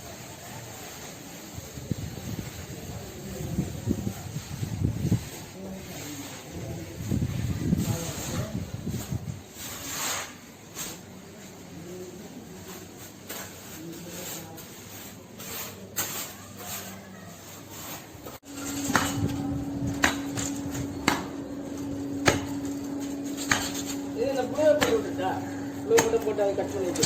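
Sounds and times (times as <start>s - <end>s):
steady low hum: 18.4s - 27.0s.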